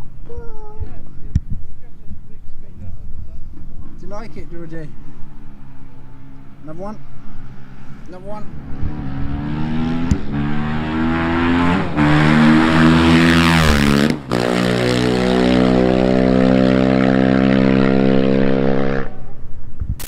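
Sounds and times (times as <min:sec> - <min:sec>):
sprint car engine accelerating: 0:03.5 - 0:19.3.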